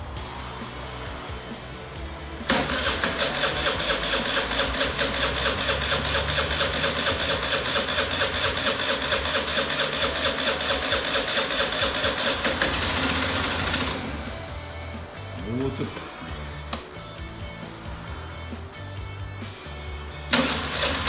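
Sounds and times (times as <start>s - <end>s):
scooter engine starting and running: 2.3s - 14.8s, 20.3s - 21.0s.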